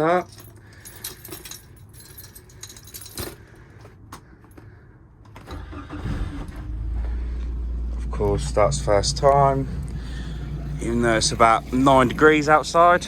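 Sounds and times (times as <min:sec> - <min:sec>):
keys jangling and clicking: 0:00.0 - 0:04.6
outboard motor starting and idling: 0:05.5 - 0:13.0.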